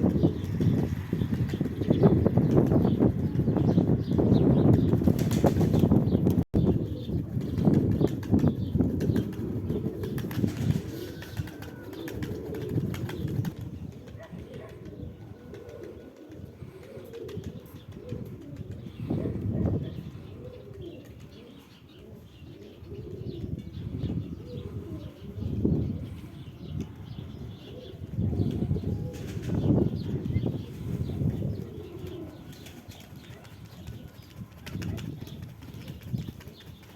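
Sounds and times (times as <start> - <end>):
pigeons flapping wings: 0.0 - 18.8, 28.5 - 30.4, 31.2 - 36.9
pigeons cooing: 0.0 - 36.9.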